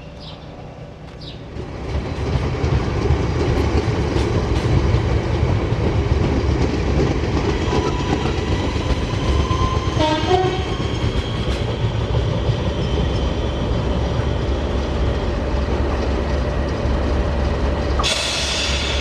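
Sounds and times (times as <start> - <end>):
train wheels rumbling on track: 0.0 - 19.0
train horn: 9.6 - 10.7
hiss: 18.0 - 19.0.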